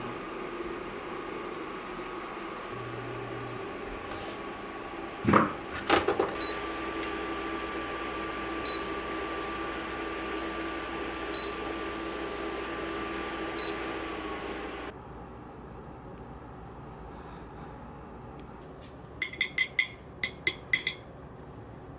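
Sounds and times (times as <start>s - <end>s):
appliance electrical hum: 0.0s - 21.9s.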